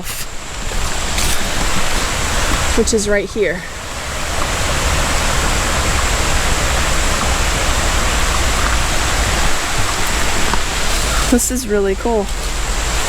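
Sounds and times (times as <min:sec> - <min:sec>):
creek rushing over rocks: 0:00.0 - 0:13.0.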